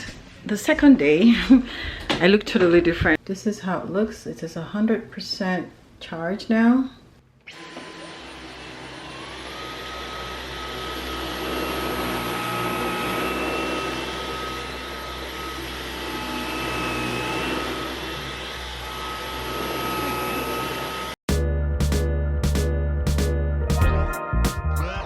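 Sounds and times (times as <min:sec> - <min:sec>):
vacuum cleaner motor whine: 0:07.5 - 0:21.2.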